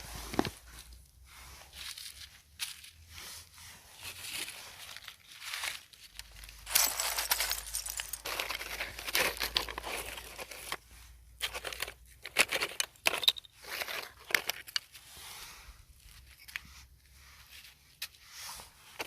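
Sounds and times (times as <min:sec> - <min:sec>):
crinkling and rustling: 0:00.0 - 0:15.1.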